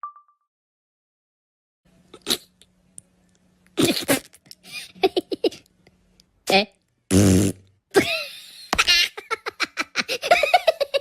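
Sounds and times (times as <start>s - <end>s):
dog blowing through nose: 7.1s - 7.6s.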